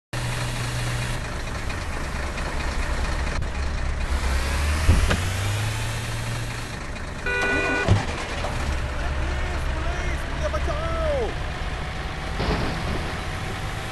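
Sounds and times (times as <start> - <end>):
truck engine droning: 0.2 - 13.9
sharp thump: 4.8 - 5.3.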